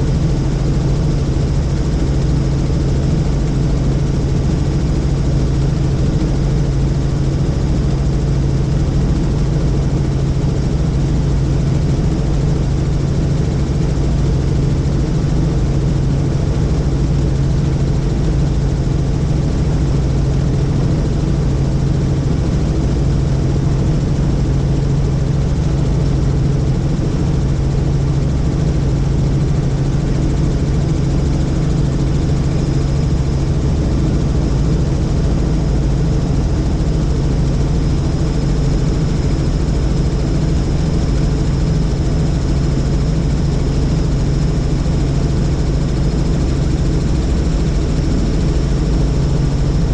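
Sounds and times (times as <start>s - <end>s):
helicopter engine and rotor drone: 0.0s - 49.9s.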